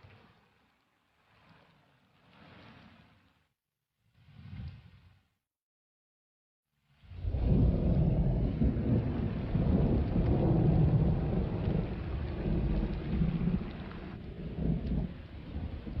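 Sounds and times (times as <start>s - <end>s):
thunder rumbling: 7.2s - 16.0s
rain falling: 7.4s - 16.0s.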